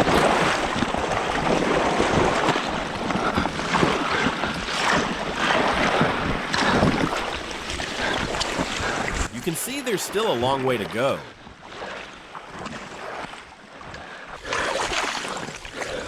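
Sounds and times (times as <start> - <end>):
wind buffeting microphone: 0.0 - 9.3
water splashing and churning: 0.0 - 16.0.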